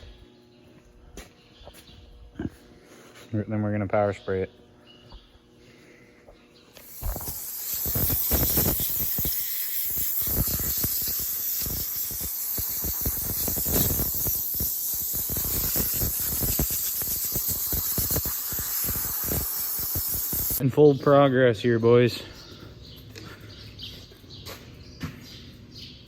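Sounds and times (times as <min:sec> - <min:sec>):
low rumbling of spray: 0:06.8 - 0:20.6
pressure washer water jet hissing: 0:06.8 - 0:20.6.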